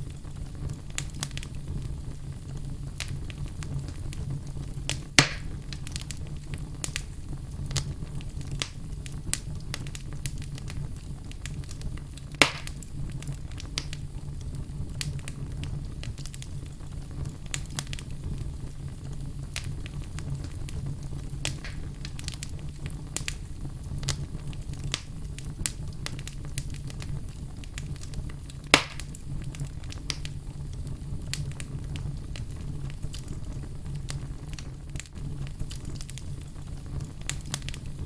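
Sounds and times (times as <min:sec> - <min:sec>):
fire burning: 0:00.0 - 0:38.0
small fire crackles: 0:00.0 - 0:38.0
loud sharp pops: 0:05.1 - 0:06.0, 0:12.3 - 0:12.8, 0:21.5 - 0:22.4, 0:28.7 - 0:29.2.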